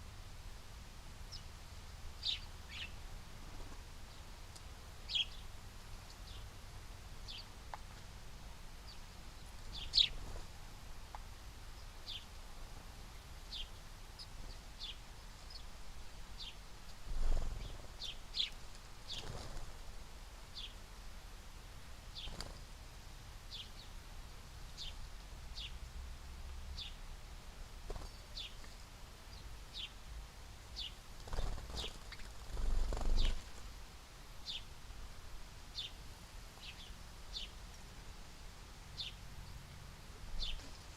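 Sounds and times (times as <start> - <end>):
small birds chipping: 1.3 - 20.9, 21.6 - 25.8, 27.7 - 33.8, 34.4 - 34.8, 35.6 - 40.9.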